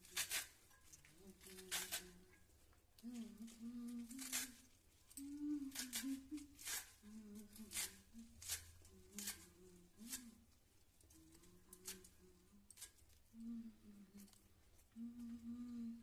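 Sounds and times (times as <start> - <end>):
person softly humming: 1.1 - 2.4, 3.0 - 10.5, 11.1 - 16.0.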